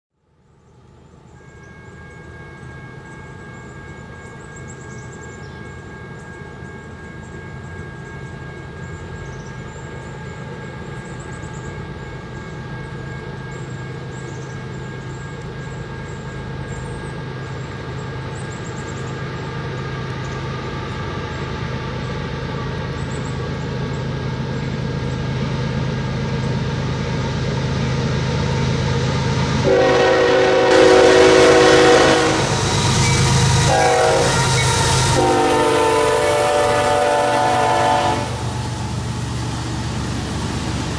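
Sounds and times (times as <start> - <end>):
diesel locomotive engine rumble: 0.2 - 40.9
train air horn blast: 29.6 - 38.6.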